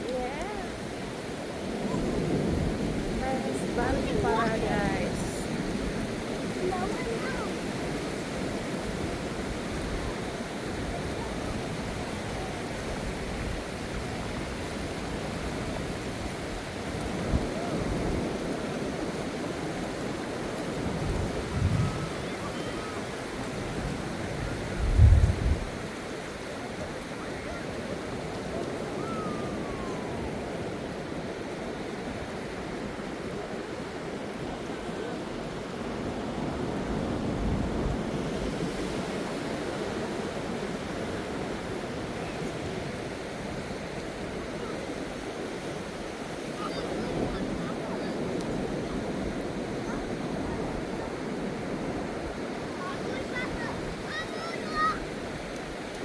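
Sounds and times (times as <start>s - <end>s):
ocean surf washing: 0.0s - 56.0s.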